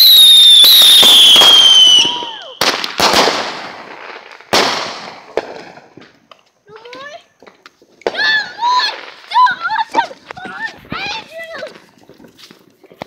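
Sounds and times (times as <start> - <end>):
firework whistle falling: 0.0 - 2.7
firework bangs: 0.0 - 6.4, 7.4 - 11.6.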